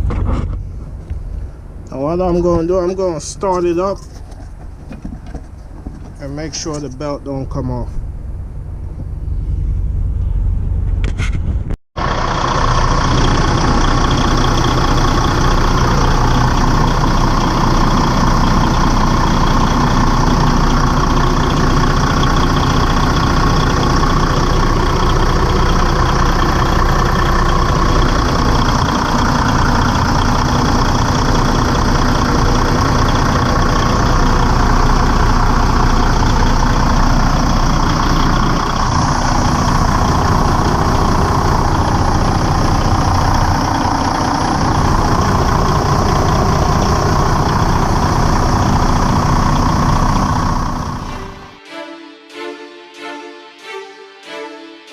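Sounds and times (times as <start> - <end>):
diesel engine idling: 0.6 - 11.0, 12.0 - 51.6.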